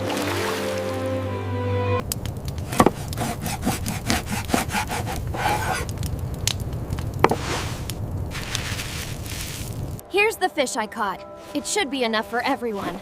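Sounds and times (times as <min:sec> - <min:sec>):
scraping with cracks and clicks: 0:05.0 - 0:10.0.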